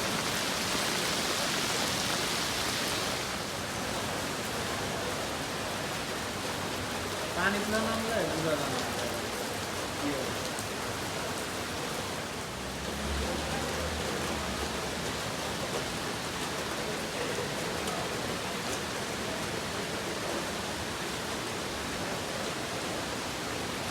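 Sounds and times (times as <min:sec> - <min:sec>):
heavy rain pouring: 0:00.0 - 0:23.9.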